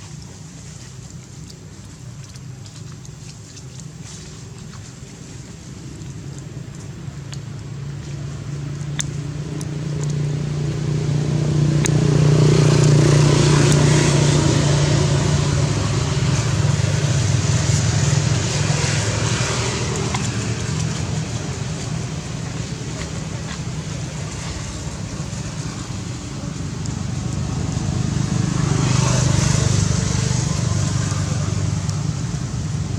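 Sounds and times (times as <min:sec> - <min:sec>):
vehicle engine running: 0:06.5 - 0:32.9.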